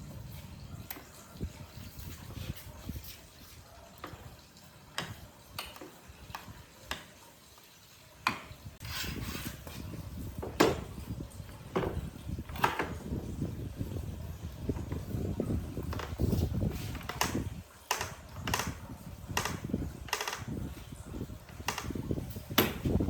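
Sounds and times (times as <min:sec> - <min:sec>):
tools clinking and knocking: 0:10.4 - 0:10.9, 0:11.7 - 0:13.0.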